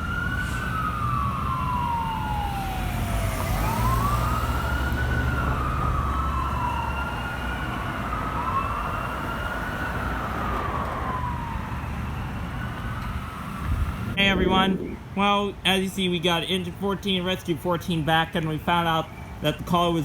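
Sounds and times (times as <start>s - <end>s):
diesel truck engines rumbling: 0.0s - 20.0s
emergency sirens wailing: 0.0s - 20.0s.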